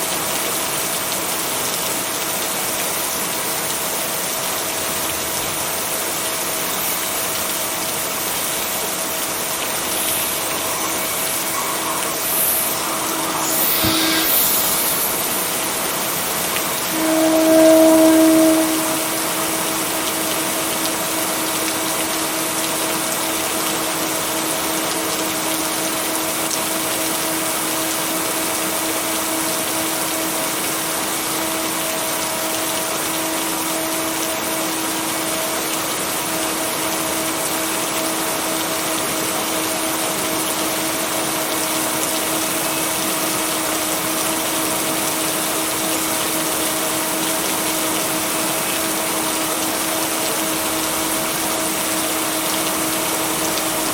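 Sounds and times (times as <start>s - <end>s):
steady rain: 0.0s - 53.9s
steady hum tones: 9.0s - 20.2s.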